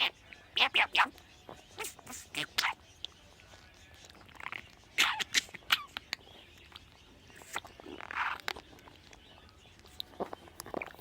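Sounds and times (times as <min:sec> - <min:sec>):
bird pecking and chewing: 0:03.0 - 0:11.0.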